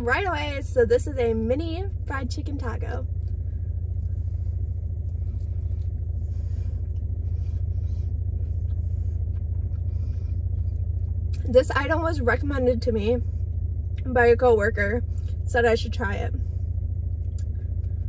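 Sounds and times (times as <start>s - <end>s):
car engine idling: 0.0s - 18.0s
faint chewing: 3.0s - 11.5s.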